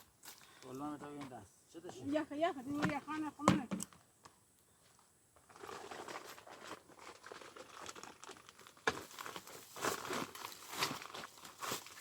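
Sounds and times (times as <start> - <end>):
dry material rustling and crackling: 5.5 - 12.0.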